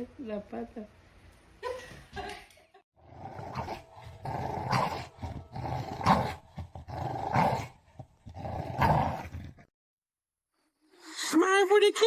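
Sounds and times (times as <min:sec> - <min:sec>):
dog growling: 0:03.0 - 0:09.7.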